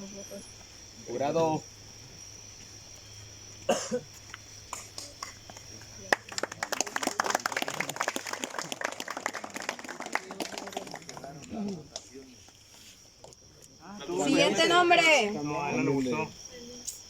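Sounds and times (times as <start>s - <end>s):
crickets chirring: 0.0s - 17.0s
person coughing: 3.7s - 4.1s
group of people clapping: 4.7s - 12.5s.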